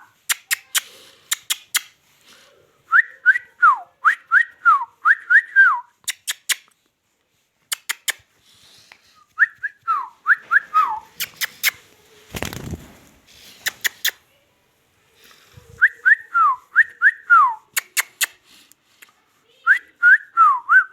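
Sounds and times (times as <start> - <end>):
person whistling: 2.9 - 5.9, 9.2 - 11.0, 15.8 - 17.7, 19.7 - 20.9.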